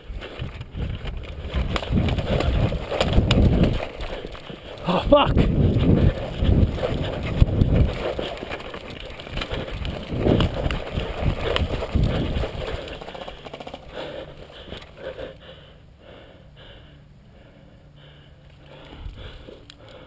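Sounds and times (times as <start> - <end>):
low thumps and rustling: 0.1 - 4.7, 5.4 - 13.9.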